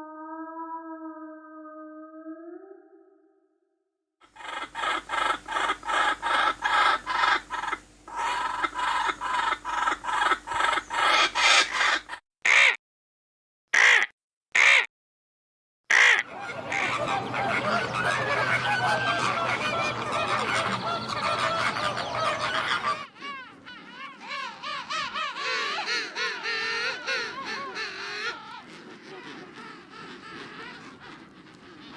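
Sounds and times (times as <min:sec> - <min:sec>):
flock of birds calling: 0:04.4 - 0:12.2, 0:15.9 - 0:31.9
poultry calling: 0:04.4 - 0:12.7, 0:15.9 - 0:31.9.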